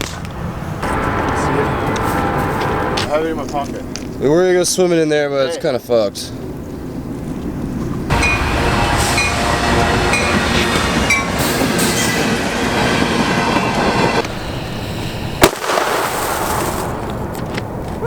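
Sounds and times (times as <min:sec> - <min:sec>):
train rumbling past: 0:00.0 - 0:05.0, 0:07.5 - 0:18.0
metal wheel squeal: 0:08.1 - 0:15.4
sharp crack: 0:15.4 - 0:18.0.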